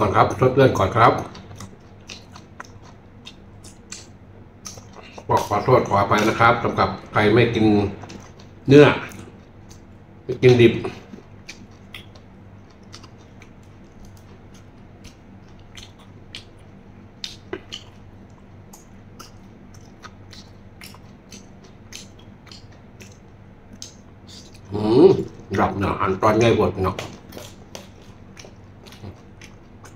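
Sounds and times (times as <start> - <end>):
faint low hum: 0.0 - 29.9
man chewing: 0.7 - 25.6, 26.9 - 29.9
wet mouth clicks and smacks: 1.4 - 5.4, 11.4 - 25.5.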